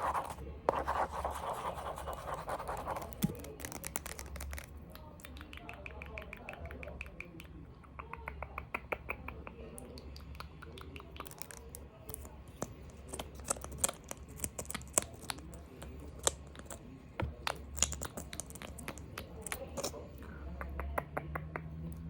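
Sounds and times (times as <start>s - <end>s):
small objects tapped and handled: 3.0s - 4.7s, 12.1s - 19.9s.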